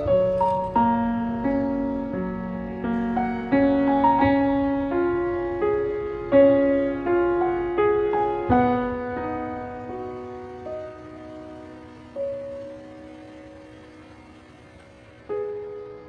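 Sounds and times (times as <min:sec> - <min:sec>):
slow gentle piano melody: 0:00.0 - 0:16.0.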